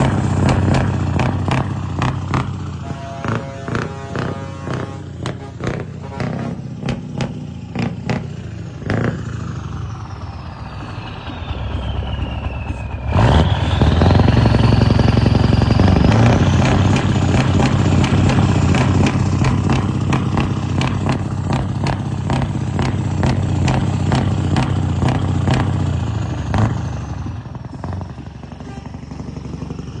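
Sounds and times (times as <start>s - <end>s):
truck engine revving: 0.0s - 30.0s
whine rising with revs: 6.0s - 25.7s
sharp engine knocks: 16.4s - 25.8s.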